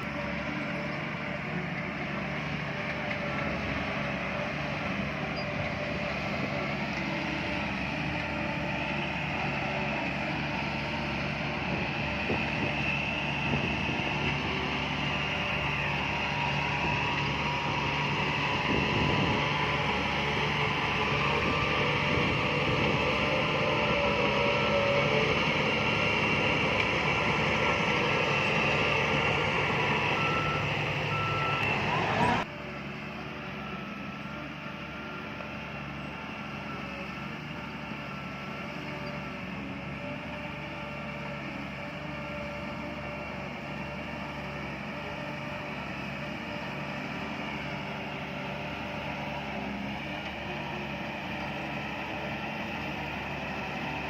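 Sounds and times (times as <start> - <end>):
heavy diesel machinery engines: 0.0 - 54.0
reversing alarm beeping: 29.0 - 32.4.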